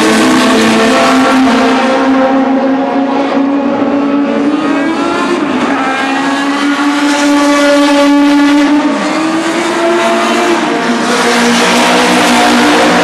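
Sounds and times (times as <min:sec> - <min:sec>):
race car engines at high revs: 0:00.0 - 0:13.0.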